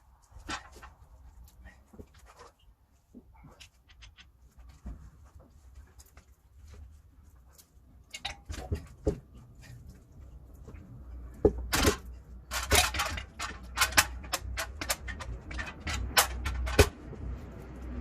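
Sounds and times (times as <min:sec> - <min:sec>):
metallic tool clicks and knocks: 0:11.4 - 0:18.0.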